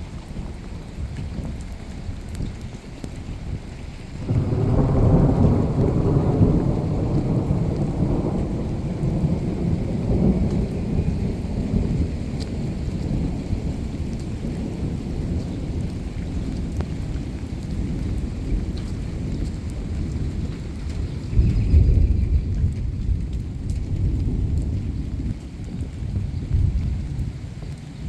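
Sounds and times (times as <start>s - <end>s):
steady rain: 0.0s - 28.0s
thunder rumbling: 3.5s - 28.0s.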